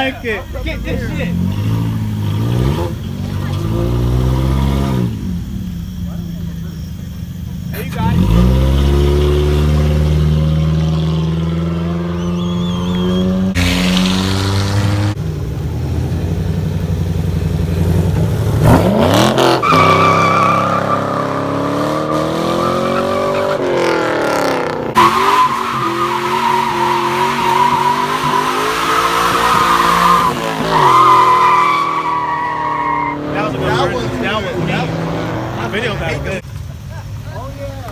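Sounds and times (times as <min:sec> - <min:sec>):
car engine revving: 0:00.0 - 0:36.6
tyres squealing: 0:06.1 - 0:15.2, 0:18.8 - 0:36.4.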